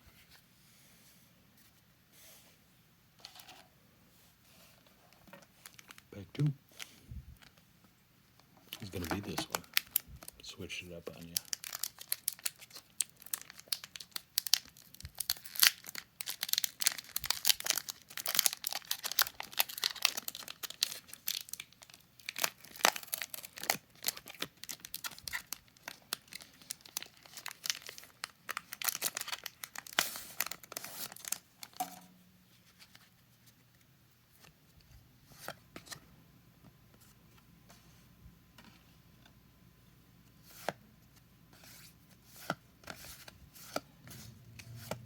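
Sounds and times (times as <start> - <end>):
foil wrapper crinkling and tearing: 11.2 - 31.8.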